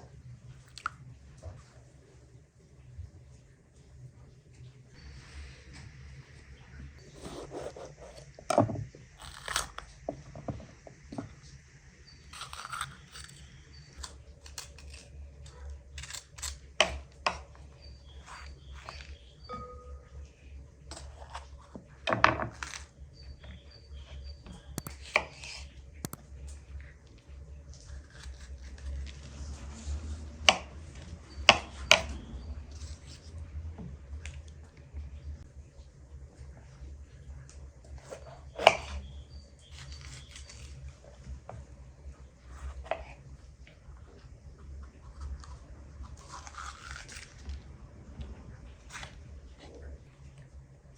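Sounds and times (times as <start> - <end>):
short scrapes: 7.0 - 8.4.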